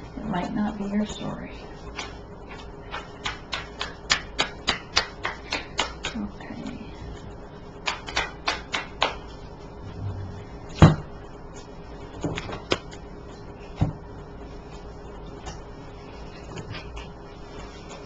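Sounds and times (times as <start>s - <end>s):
cards snapping and tapping: 2.0s - 6.2s, 7.8s - 9.2s, 12.2s - 13.0s.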